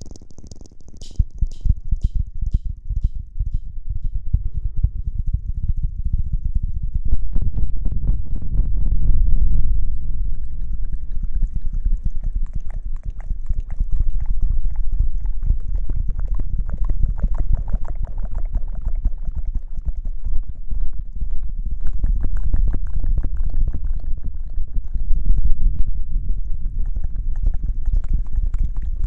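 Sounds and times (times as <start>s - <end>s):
rubbing and scratching on microphone: 0.0s - 2.0s
heavy low rumble: 0.0s - 29.0s.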